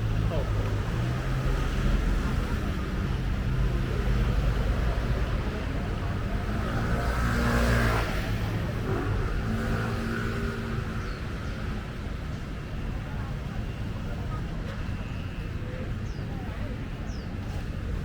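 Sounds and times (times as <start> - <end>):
low rumble of traffic: 0.0 - 18.0.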